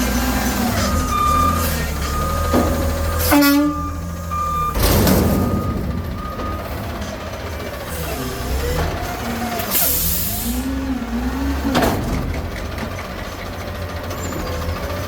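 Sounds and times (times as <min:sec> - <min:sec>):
truck engine running: 0:00.0 - 0:15.0
backup alarm beeping: 0:00.8 - 0:07.1.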